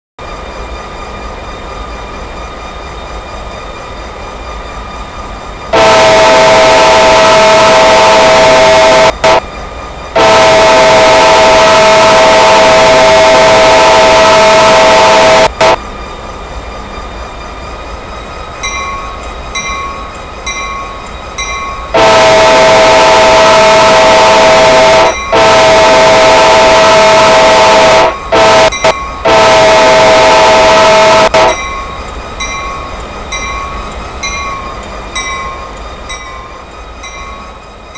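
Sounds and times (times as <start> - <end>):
freight train rumbling: 0.2 - 37.9
locomotive air horn: 5.7 - 9.4, 10.2 - 15.8, 22.0 - 31.6.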